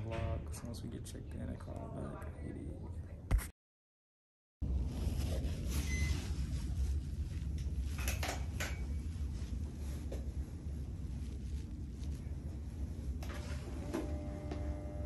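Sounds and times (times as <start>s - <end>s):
low room rumble: 4.6s - 15.0s.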